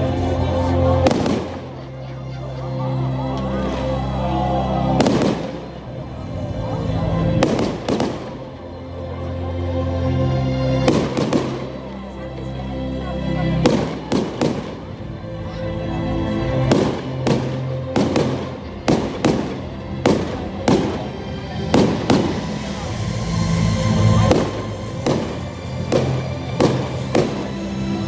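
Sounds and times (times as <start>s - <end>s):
background music with held notes: 0.0s - 28.0s
fireworks bangs with echoes: 1.0s - 1.8s, 5.0s - 6.0s, 7.3s - 8.6s, 10.8s - 11.8s, 13.6s - 15.0s, 16.6s - 23.1s, 24.0s - 28.0s.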